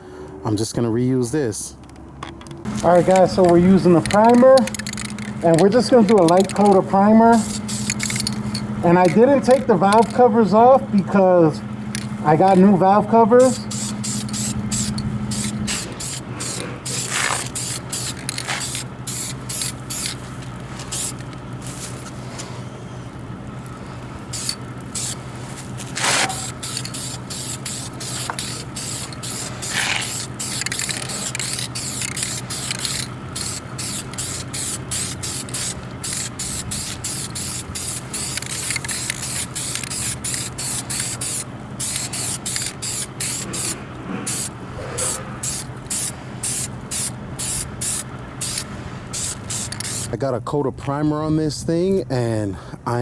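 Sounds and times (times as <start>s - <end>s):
low hum: 2.6s - 50.0s
aerosol can spraying bursts: 2.7s - 10.2s, 13.4s - 22.1s, 24.3s - 50.2s.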